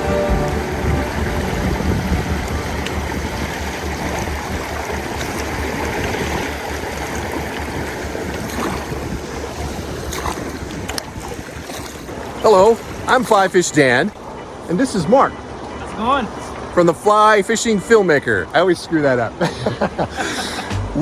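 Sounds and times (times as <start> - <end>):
wind buffeting microphone: 0.0 - 13.2
river water rushing: 0.0 - 19.1.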